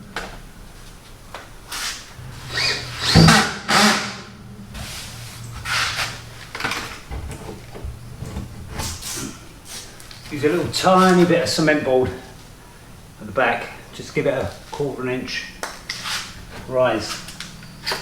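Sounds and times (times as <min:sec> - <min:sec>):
handling knocks and clatter: 0:00.0 - 0:12.6
power drill running: 0:02.1 - 0:08.1.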